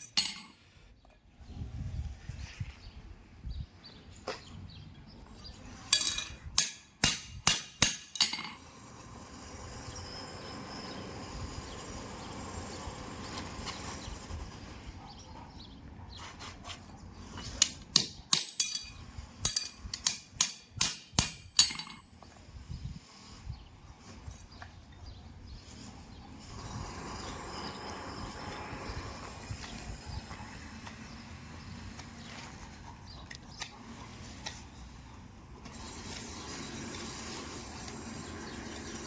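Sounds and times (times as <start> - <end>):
hammer striking metal: 6.0 - 8.6, 17.6 - 22.2.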